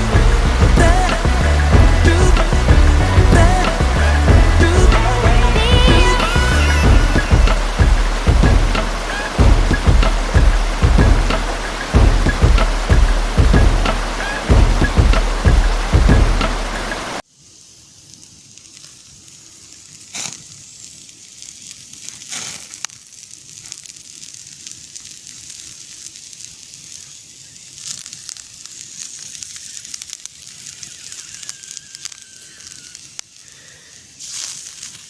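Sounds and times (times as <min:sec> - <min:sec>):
campfire crackling and popping: 0:00.0 - 0:17.2, 0:18.0 - 0:35.0
loud sound cut off: 0:00.0 - 0:17.2.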